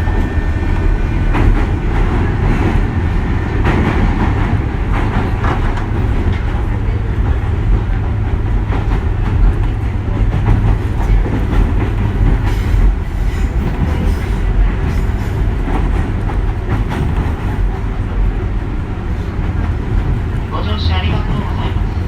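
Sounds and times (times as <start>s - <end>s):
electric train low rumble: 0.0s - 22.0s.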